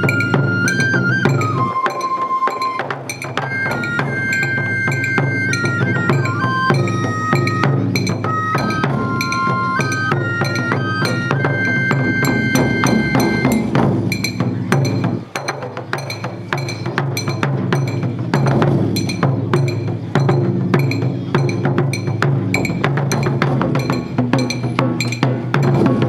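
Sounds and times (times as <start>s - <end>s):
high flute melody: 0.0s - 13.9s
drum ensemble drumming: 0.0s - 26.0s.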